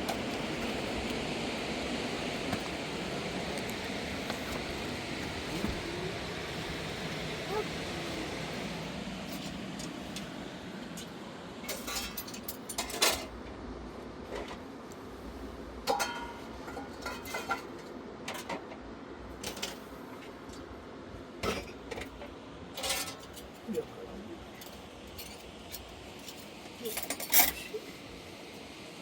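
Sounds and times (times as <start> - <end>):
dishes and utensils clinking: 11.7 - 13.3, 15.9 - 18.6, 26.8 - 27.8.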